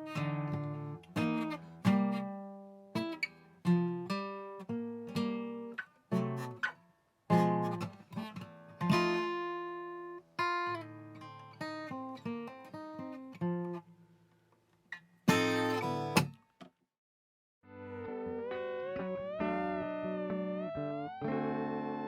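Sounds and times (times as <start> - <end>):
acoustic guitar blues: 0.0 - 13.8, 15.3 - 16.3.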